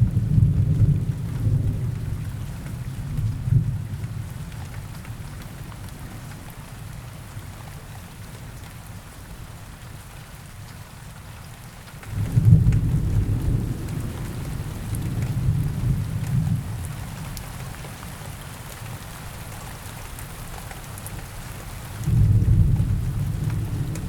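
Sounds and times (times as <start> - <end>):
rolling thunder: 0.0 - 4.4, 12.1 - 17.3, 22.0 - 24.0
steady rain: 0.0 - 24.0.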